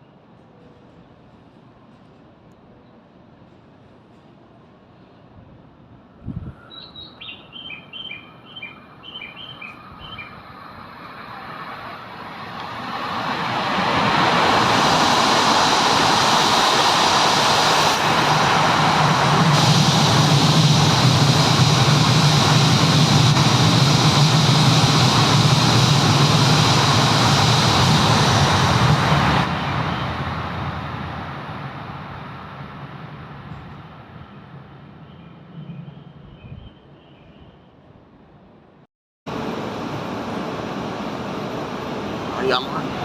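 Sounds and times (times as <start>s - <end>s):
high-speed train passing: 0.0s - 37.0s, 37.8s - 43.0s
low hum: 12.6s - 34.3s.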